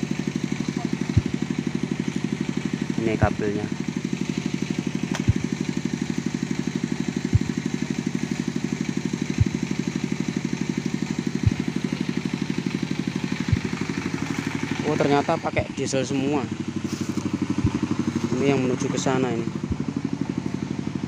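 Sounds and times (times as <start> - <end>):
diesel engine chugging: 0.0 - 21.0
low thump: 1.1 - 1.5, 5.1 - 5.7, 7.3 - 7.7, 9.4 - 9.6, 11.4 - 11.8, 13.4 - 13.9, 17.6 - 18.0.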